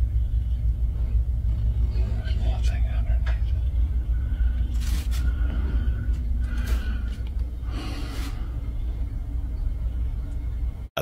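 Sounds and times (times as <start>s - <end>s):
steady low rumble: 0.0s - 11.0s
breathy exhalations: 4.2s - 8.8s.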